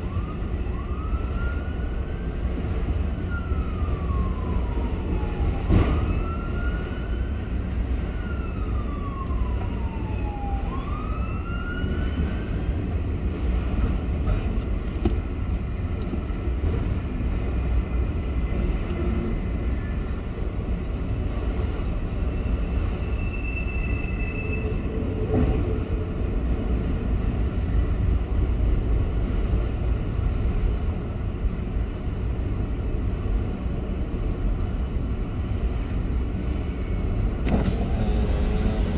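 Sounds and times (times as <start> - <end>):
siren wailing: 0.0 - 2.3, 3.2 - 12.5
freight train rumbling past: 11.8 - 38.9.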